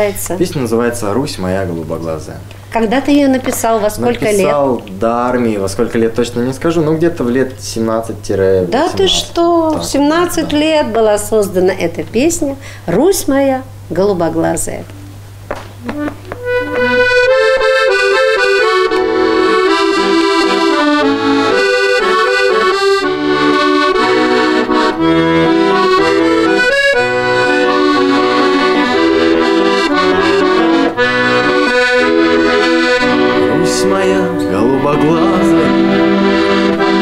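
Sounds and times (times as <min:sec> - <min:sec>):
accordion playing: 0:02.8 - 0:04.7, 0:08.7 - 0:11.7, 0:15.8 - 0:37.0.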